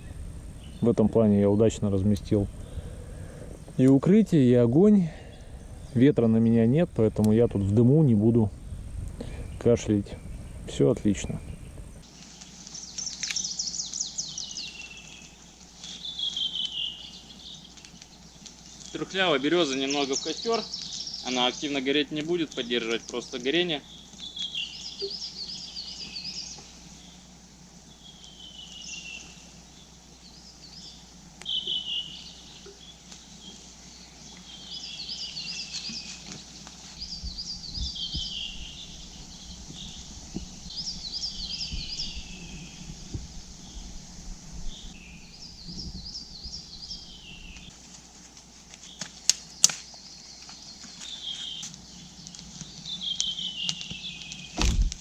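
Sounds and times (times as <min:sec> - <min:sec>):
low rumble: 0:00.0 - 0:03.8
songbird trilling: 0:00.0 - 0:04.1, 0:05.2 - 0:44.0, 0:44.6 - 0:47.7, 0:48.9 - 0:54.6.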